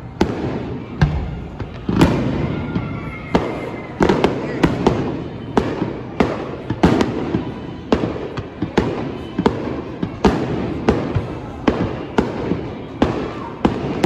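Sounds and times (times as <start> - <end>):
fireworks booming: 0.0 - 14.0.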